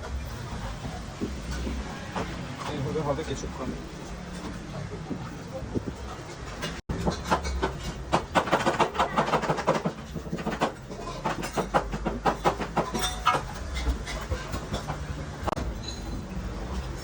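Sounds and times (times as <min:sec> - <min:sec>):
cooking utensils clattering: 0:06.0 - 0:16.3.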